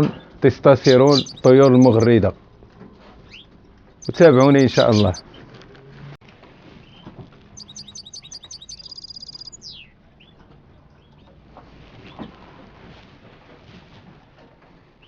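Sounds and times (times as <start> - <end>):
faint bird chirps: 0.7 - 2.3, 4.0 - 5.3, 7.6 - 9.9
songbird singing a trill: 0.7 - 2.3, 4.0 - 5.2, 7.6 - 9.9.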